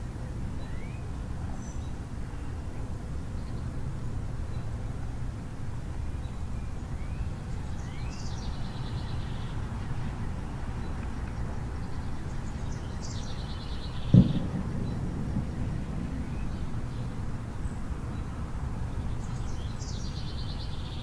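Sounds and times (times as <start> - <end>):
low outdoor rumble: 0.0 - 21.0
bird singing with trill: 0.6 - 2.0, 6.2 - 21.0
low thump: 14.1 - 16.7.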